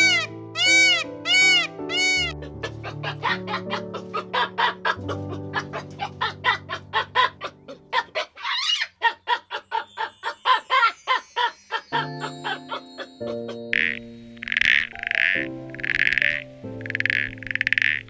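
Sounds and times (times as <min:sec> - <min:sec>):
comic background music: 0:00.0 - 0:08.3, 0:09.4 - 0:18.0
chicken-like clucking beat: 0:00.0 - 0:08.5.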